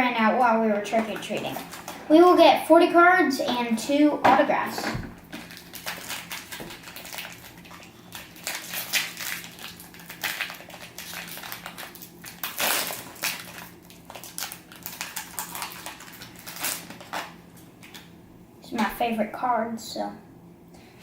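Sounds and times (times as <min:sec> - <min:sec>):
faint steady hum: 0:00.0 - 0:21.0
packaging crinkling and rustling: 0:05.3 - 0:18.1.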